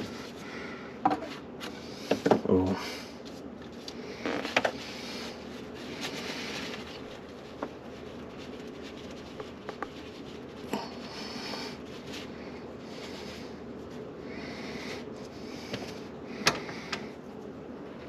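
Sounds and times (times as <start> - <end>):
hands scratching and handling: 3.2 - 14.0.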